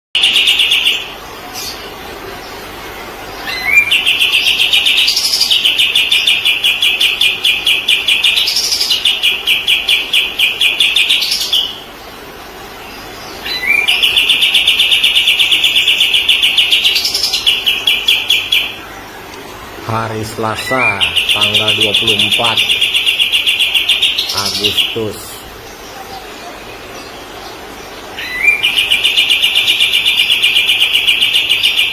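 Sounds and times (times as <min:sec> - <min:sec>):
songbird singing rapid trills: 0:12.8 - 0:18.8, 0:19.9 - 0:31.9.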